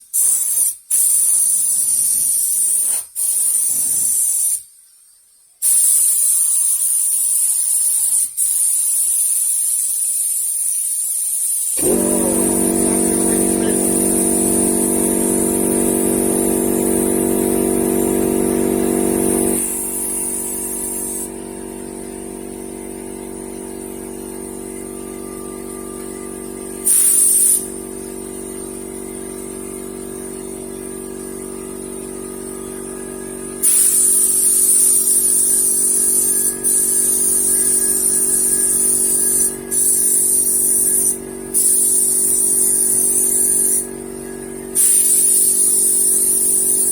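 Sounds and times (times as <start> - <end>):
spray gun hissing: 5.6 - 24.5, 26.8 - 30.0, 33.0 - 43.9, 44.7 - 46.9
motor humming: 11.8 - 46.9.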